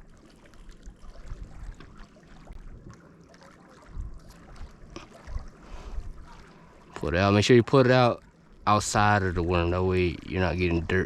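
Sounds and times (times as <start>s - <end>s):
water lapping: 0.0s - 11.0s.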